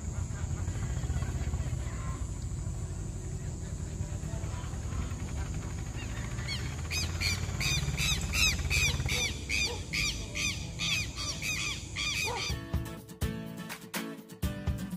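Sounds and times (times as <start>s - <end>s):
low background rumble: 0.0s - 12.5s
bird harsh repeated calls: 4.2s - 12.8s
music: 11.6s - 14.9s.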